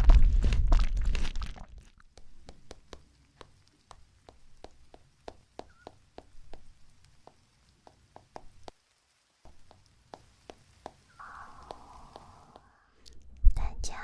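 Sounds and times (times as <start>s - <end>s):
crisp fruit chewing crunches: 0.0s - 2.2s
soft breathy whisper: 11.2s - 14.0s.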